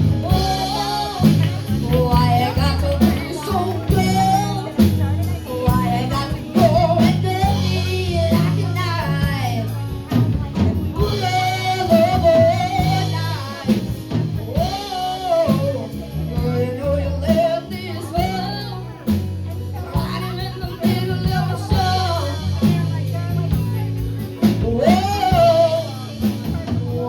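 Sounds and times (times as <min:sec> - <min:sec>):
guitar and bass: 0:00.0 - 0:27.0
person singing: 0:00.0 - 0:27.0
steady drum beat: 0:00.0 - 0:27.0.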